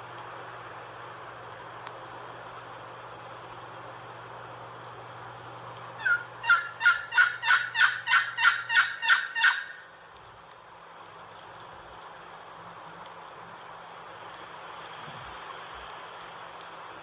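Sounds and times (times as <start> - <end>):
wind and snow hiss: 0.0 - 17.0
turkey yelping: 6.0 - 9.8.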